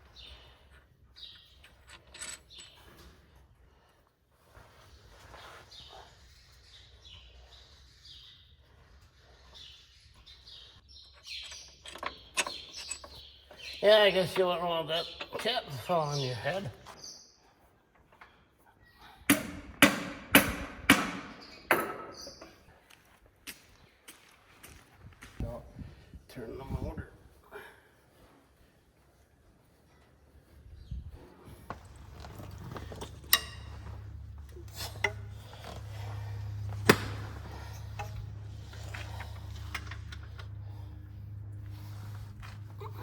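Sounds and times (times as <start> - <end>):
hand tools clinking on metal: 1.4 - 3.2, 11.1 - 16.3, 31.7 - 40.6
steady low hum: 31.5 - 43.0.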